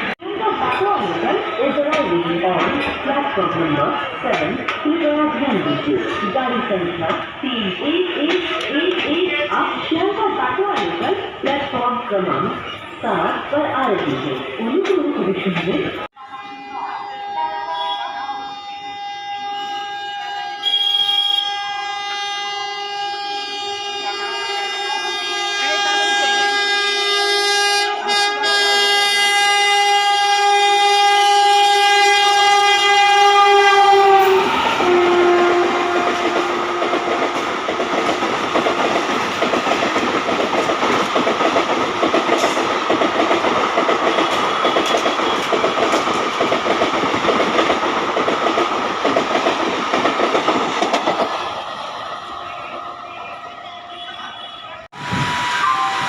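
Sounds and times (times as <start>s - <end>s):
train horn: 16.2s - 37.4s, 52.3s - 56.0s.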